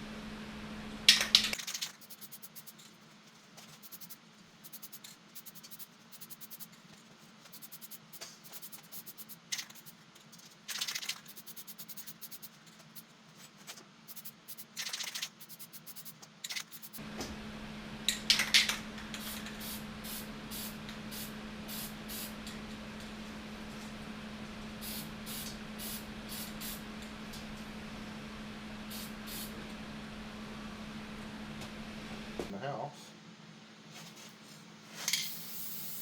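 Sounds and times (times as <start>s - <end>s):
steady low hum: 0.0s - 32.5s
short hissing sprays: 1.6s - 2.8s, 3.6s - 6.8s, 7.5s - 10.0s, 10.7s - 13.1s, 14.1s - 17.0s, 19.2s - 22.4s, 24.8s - 26.8s, 28.9s - 29.5s, 34.9s - 36.0s.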